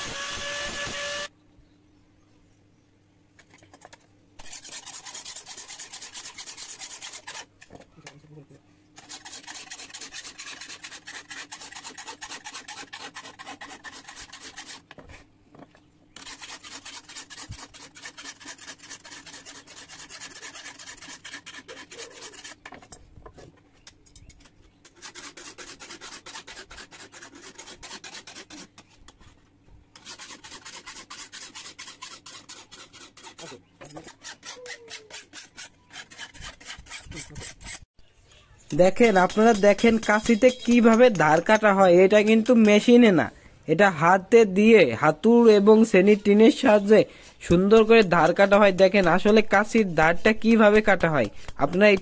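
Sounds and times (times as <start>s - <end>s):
hand tool stroking metal blade: 4.4s - 7.6s, 9.0s - 14.9s, 16.2s - 23.0s, 24.1s - 29.2s, 30.0s - 37.9s, 38.7s - 43.1s, 47.4s - 52.0s.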